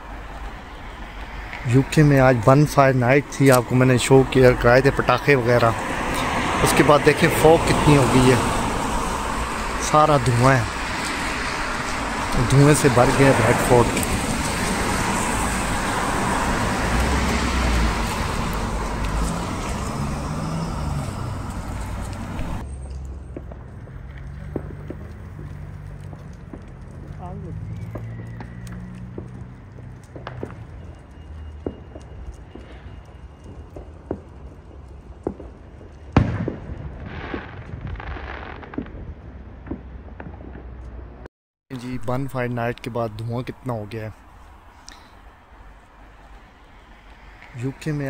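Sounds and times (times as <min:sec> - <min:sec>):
passing vehicle rushing: 0:00.0 - 0:35.4, 0:40.4 - 0:48.0
low outdoor rumble: 0:00.0 - 0:41.3
firework bang: 0:35.2 - 0:40.8.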